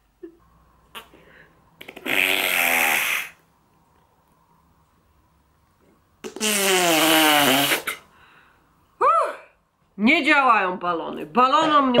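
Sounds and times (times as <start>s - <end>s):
air blown through straw into slime: 1.8s - 3.4s, 6.2s - 8.0s.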